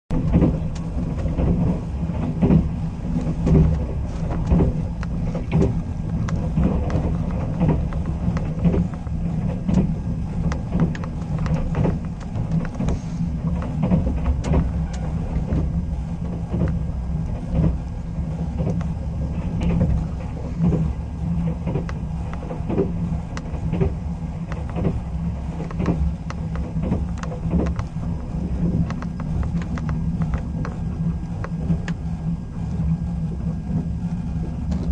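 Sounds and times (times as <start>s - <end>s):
train cabin rumble: 0.1s - 34.9s
wheels clicking on rails: 0.1s - 34.9s.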